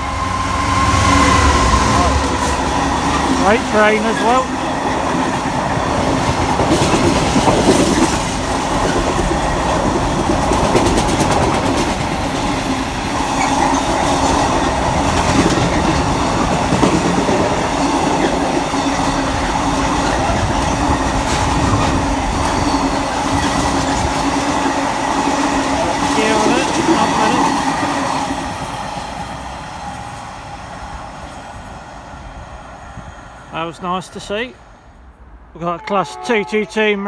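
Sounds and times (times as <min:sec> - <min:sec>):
high squeal: 0:00.0 - 0:04.5
freight train rolling on rails: 0:00.0 - 0:37.0.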